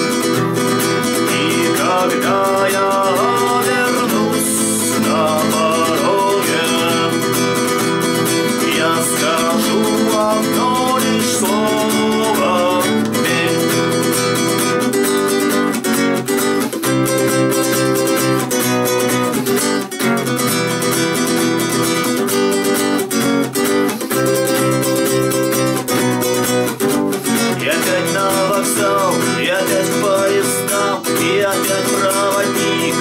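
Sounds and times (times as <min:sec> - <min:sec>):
person singing: 0:00.0 - 0:14.8, 0:27.2 - 0:33.0
acoustic guitar strumming: 0:00.0 - 0:33.0.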